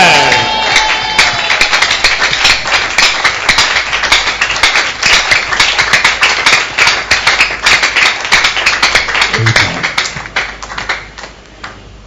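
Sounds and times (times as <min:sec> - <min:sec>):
congregation clapping: 0:00.0 - 0:11.8.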